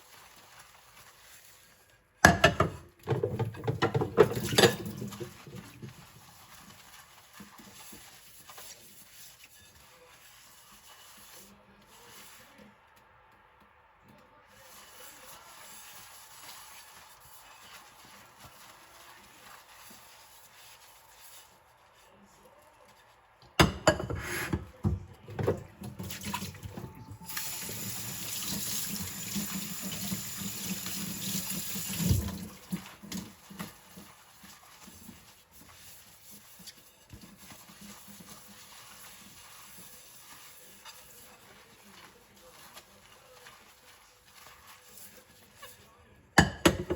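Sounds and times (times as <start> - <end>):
dishes clattering in sink: 2.2 - 5.6, 23.6 - 27.6, 46.4 - 46.9
tap water running: 2.2 - 9.3, 23.6 - 45.7
faint handling sounds: 3.3 - 23.6, 24.2 - 46.3.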